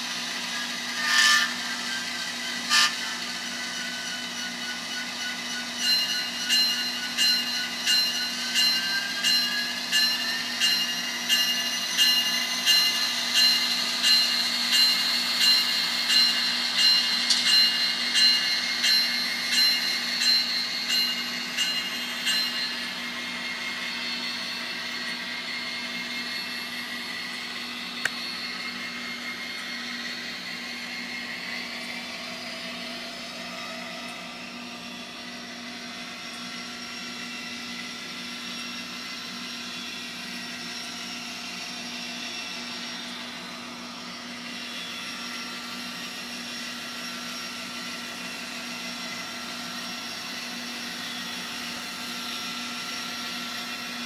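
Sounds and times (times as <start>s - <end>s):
diesel locomotive engine drone: 0.0s - 54.0s
sharp click: 17.2s - 17.6s.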